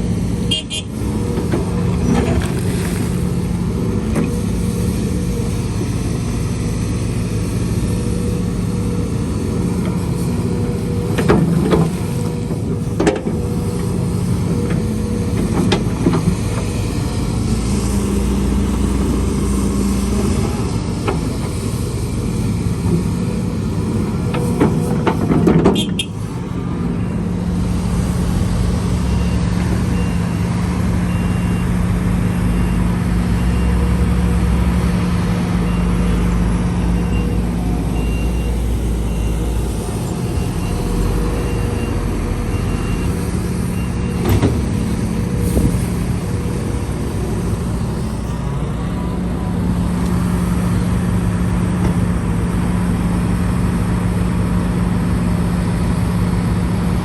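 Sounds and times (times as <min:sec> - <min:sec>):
heavy diesel machinery engines: 0:00.0 - 0:57.0
reversing alarm beeping: 0:25.8 - 0:34.4, 0:35.6 - 0:46.5.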